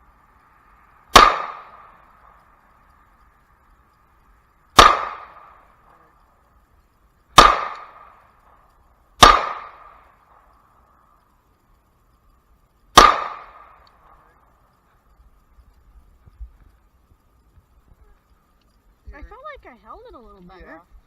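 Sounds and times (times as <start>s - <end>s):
faint high hum: 0.0s - 21.0s
pistol shots with echo: 1.1s - 2.0s, 4.8s - 5.6s, 7.4s - 8.2s, 9.2s - 10.1s, 12.9s - 14.0s.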